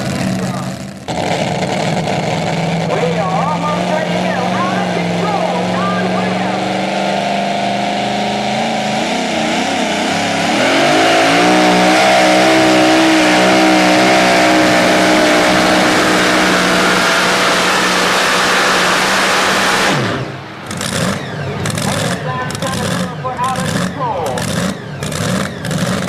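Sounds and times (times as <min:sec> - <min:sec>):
truck engine at high revs: 0:00.0 - 0:26.0.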